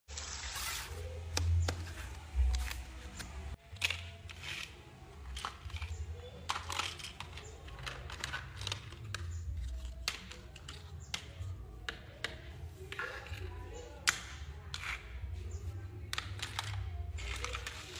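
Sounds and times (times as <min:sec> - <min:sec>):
clicks and knocks of wood and tools: 0:01.3 - 0:17.9.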